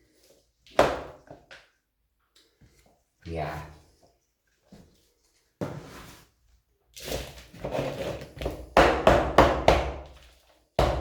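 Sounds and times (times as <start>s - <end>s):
potting mix rustling and scraping: 4.8s - 8.7s.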